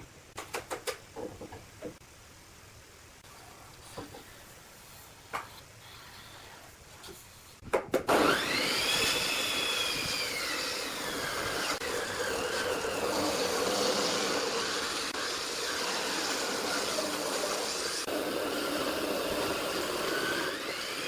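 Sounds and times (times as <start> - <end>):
power tool motor whining: 8.1 - 21.0.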